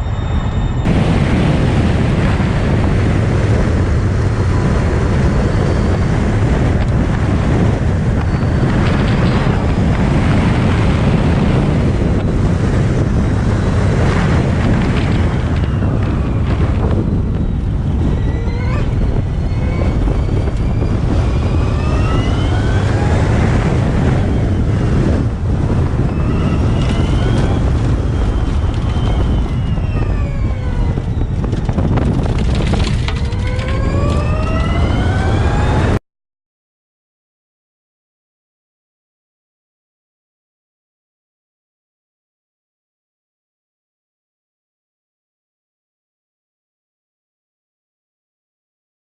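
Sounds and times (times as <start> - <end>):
wind rumble on microphone: 0.0 - 36.0
electric race car whining: 13.4 - 36.0.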